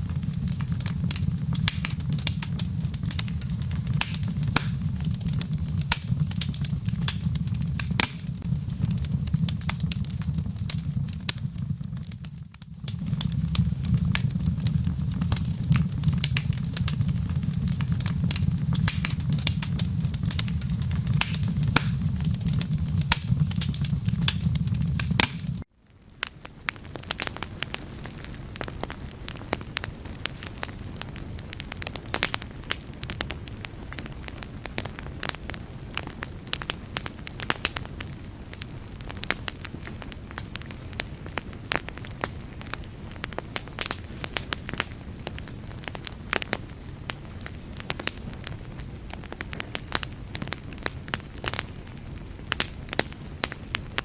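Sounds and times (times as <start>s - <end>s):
strong low rumble: 0.0s - 25.6s
fire crackling: 0.0s - 54.0s.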